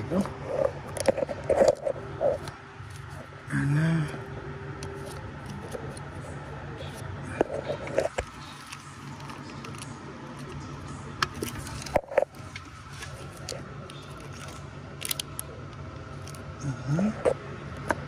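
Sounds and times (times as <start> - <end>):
steady low hum: 0.0 - 18.0
tools and parts clicking: 13.4 - 15.5.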